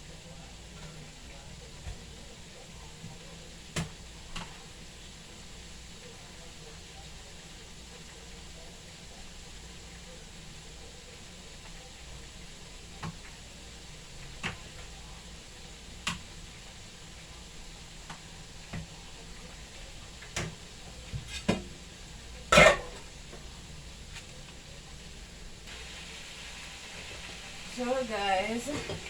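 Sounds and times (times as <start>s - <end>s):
chicken frying in oil: 0.0s - 29.0s
utensils and dishes clinking: 22.5s - 23.1s, 28.5s - 29.0s.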